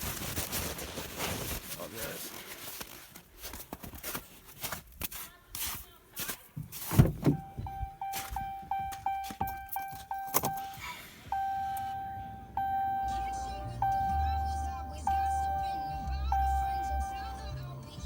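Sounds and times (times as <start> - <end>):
thump: 6.6 - 7.8
electronic warning chime: 7.3 - 17.6.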